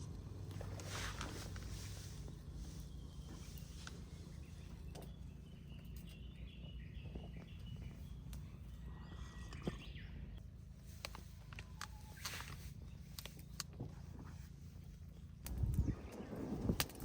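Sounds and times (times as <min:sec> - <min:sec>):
steady low hum: 0:00.0 - 0:17.0
bird chirping: 0:01.4 - 0:10.4.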